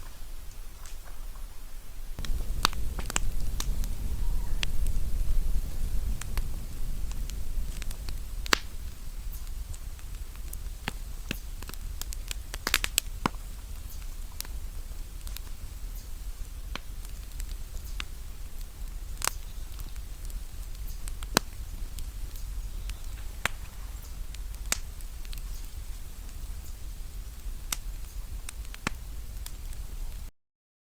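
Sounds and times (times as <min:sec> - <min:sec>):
campfire crackling and popping: 0:00.0 - 0:30.3
low rumble: 0:02.2 - 0:10.6.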